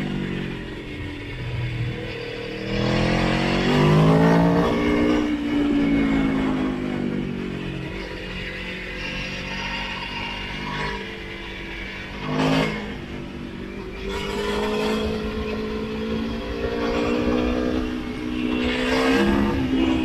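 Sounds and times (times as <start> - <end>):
low wind rumble: 0.0 - 9.3
motorcycle engine running: 0.0 - 20.0.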